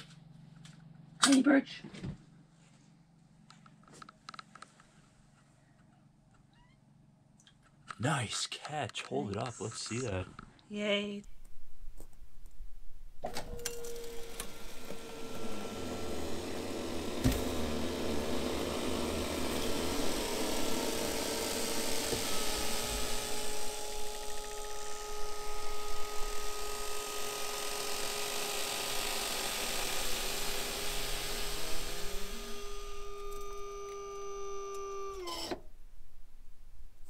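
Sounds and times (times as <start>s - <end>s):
electric lift motor whine: 13.2s - 35.6s.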